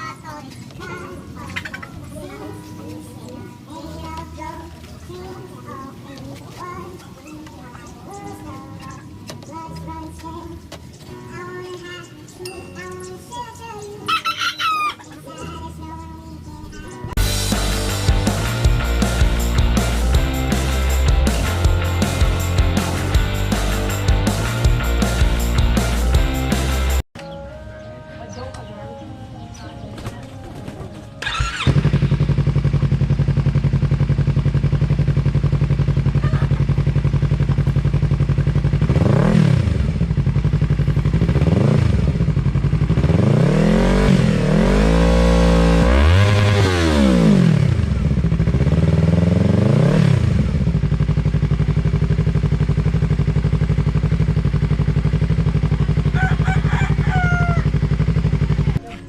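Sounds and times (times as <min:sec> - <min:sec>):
motorcycle engine idling and revving: 0:17.1 - 0:27.0, 0:31.0 - 0:59.0.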